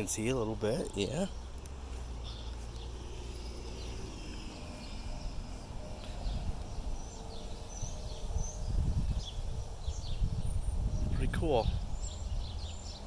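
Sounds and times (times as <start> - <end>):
birds chirping: 0.0 - 13.0
low rumble: 2.9 - 12.8.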